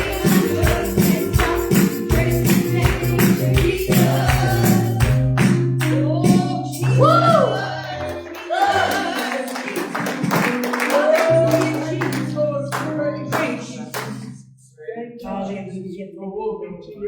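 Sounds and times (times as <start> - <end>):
sharp percussive strikes: 0.0 - 6.9
hand claps: 0.0 - 7.0, 8.0 - 14.3
sustained keyboard and bass: 0.0 - 8.2
person singing: 0.0 - 17.0.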